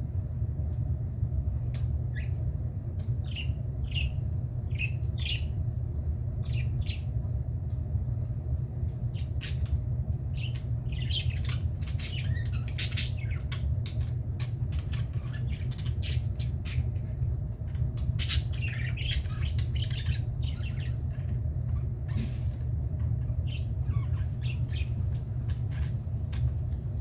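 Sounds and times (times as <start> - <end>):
steady low hum: 0.0 - 27.0
budgerigars squawking and chirping: 2.1 - 2.4, 3.2 - 5.6, 6.4 - 7.1, 10.4 - 16.9, 18.1 - 26.4.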